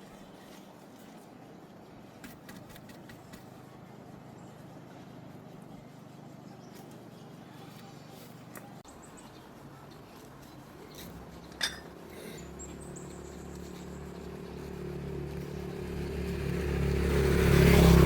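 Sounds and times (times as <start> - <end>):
vehicle engine approaching: 12.4 - 18.0.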